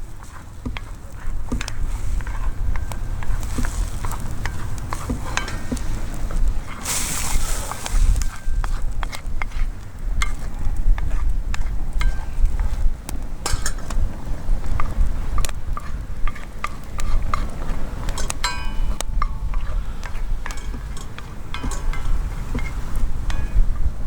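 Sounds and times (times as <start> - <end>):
utensil scraping iron frying pan: 0.0 - 12.8, 13.4 - 14.1, 14.7 - 23.8
ringing clink: 18.4 - 19.4.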